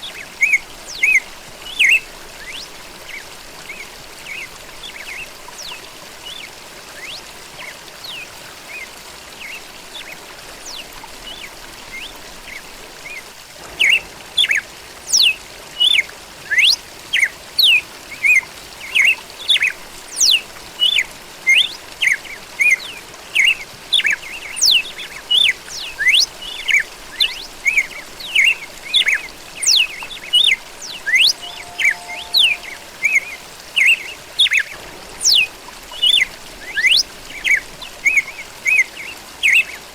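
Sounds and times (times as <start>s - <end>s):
faint bird chirps: 25.8s - 34.6s
bird singing sharp chirps: 30.8s - 34.6s.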